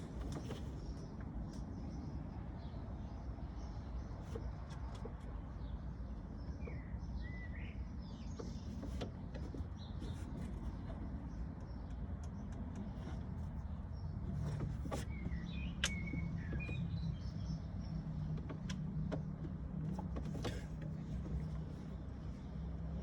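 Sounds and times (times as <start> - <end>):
light clicks and ticks: 11.6 - 13.2.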